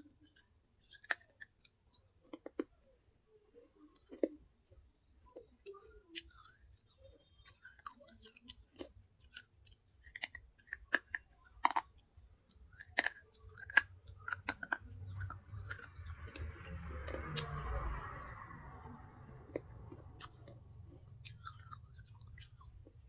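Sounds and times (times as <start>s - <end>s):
gritty chewing and grinding: 0.0s - 2.8s, 3.9s - 5.5s, 6.1s - 23.0s.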